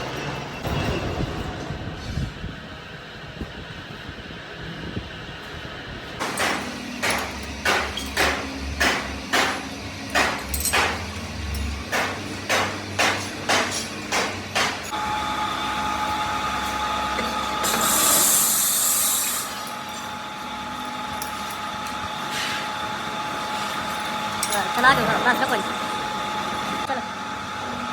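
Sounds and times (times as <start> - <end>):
steady mechanical hum: 0.0 - 27.9
burst of hiss: 17.7 - 19.6.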